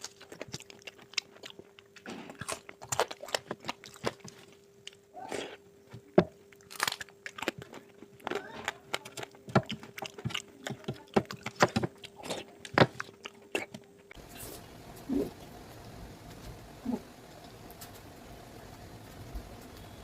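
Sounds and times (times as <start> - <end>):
chewing with wet smacks: 0.0 - 5.0, 6.0 - 14.2
faint steady hum: 0.0 - 20.0.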